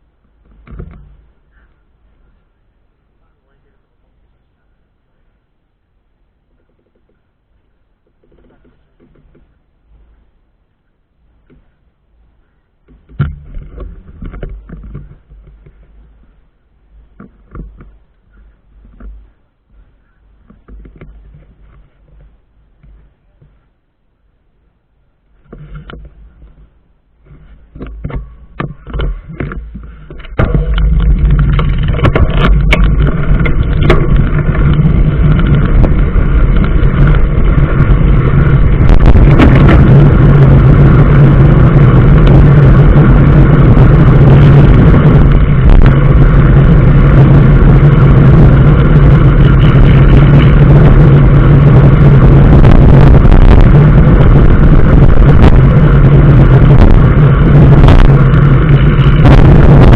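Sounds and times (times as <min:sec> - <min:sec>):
vehicle engine running: 0:25.2 - 0:59.9.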